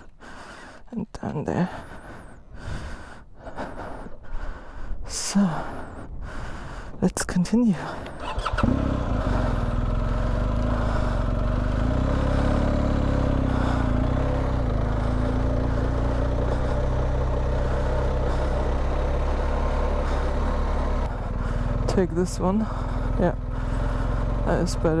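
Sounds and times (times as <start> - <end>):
motorcycle engine running: 8.0 - 25.0.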